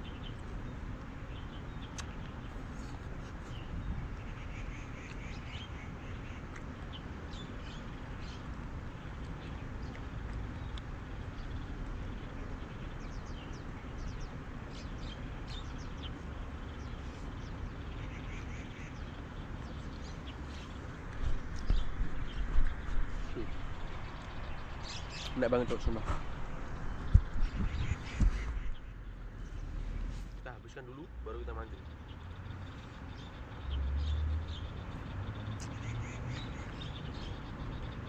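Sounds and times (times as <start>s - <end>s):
birds chirping: 0.0s - 38.0s
outdoor background rumble: 0.0s - 38.0s.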